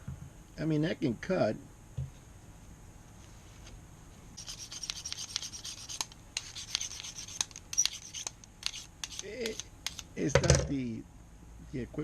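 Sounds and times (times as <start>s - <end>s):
blade rasping on sharpener: 4.4s - 10.1s.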